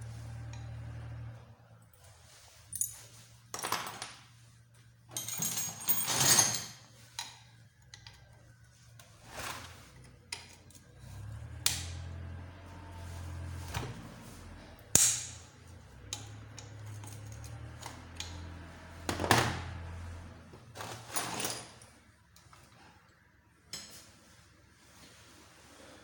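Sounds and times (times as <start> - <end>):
metal tools clinking on engine parts: 5.1 - 8.3, 16.0 - 18.5.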